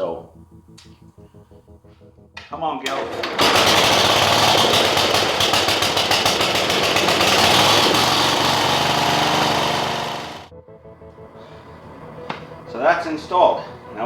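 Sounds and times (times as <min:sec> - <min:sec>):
garden tractor engine running: 0:02.8 - 0:10.5.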